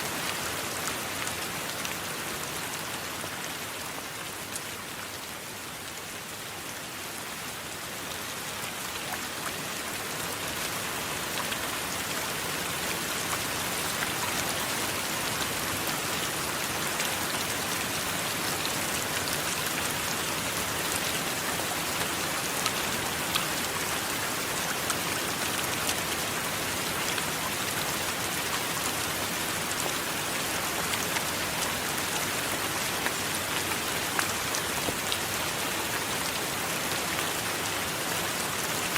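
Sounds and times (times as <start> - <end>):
steady rain hiss: 0.0 - 38.9
rain drops ticking: 8.8 - 38.9.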